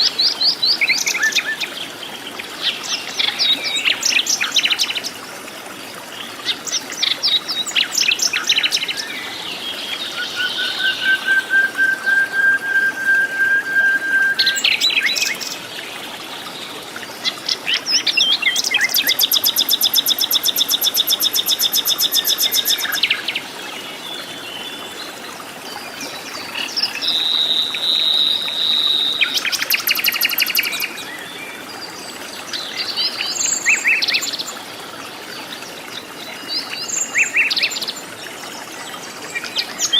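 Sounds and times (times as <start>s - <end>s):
bird long whistle: 10.6s - 15.2s.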